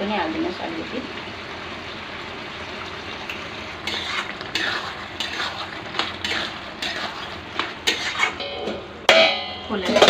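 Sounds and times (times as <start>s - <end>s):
curry sizzling in a pan: 0.0s - 10.0s
spoon scraping a pan: 3.8s - 8.4s.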